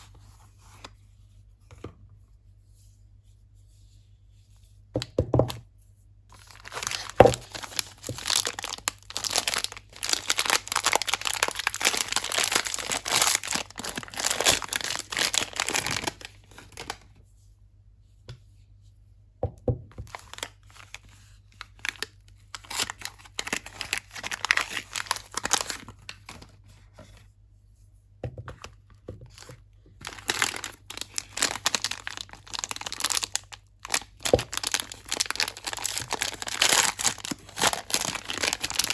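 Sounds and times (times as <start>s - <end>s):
wrappers tearing and crinkling: 6.3s - 17.0s, 20.1s - 26.4s, 30.0s - 38.9s.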